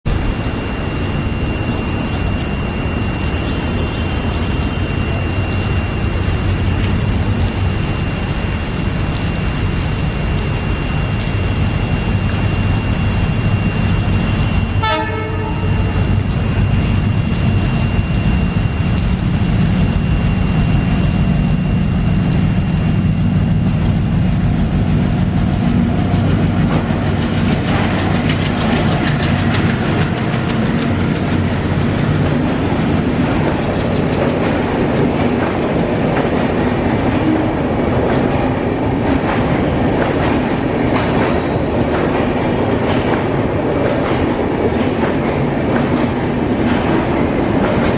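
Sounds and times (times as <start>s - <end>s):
locomotive engine humming: 0.1s - 47.9s
train wheels clicking over rail joints: 24.2s - 47.9s.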